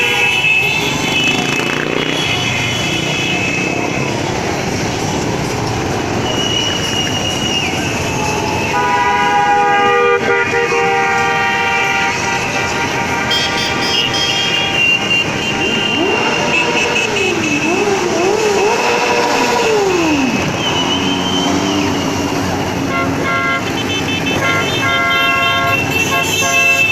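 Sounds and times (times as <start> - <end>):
vehicle horns honking: 0.0 - 4.2, 6.1 - 26.9
motorcycle engines: 0.0 - 26.9.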